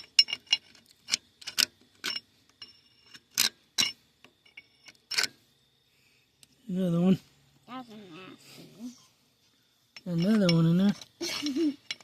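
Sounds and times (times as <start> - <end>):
metal parts and tools clinking: 0.0 - 5.4, 9.9 - 12.0.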